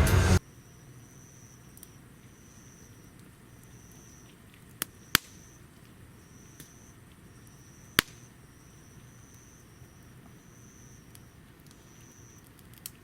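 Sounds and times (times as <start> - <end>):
high thin tone: 0.0 - 0.4.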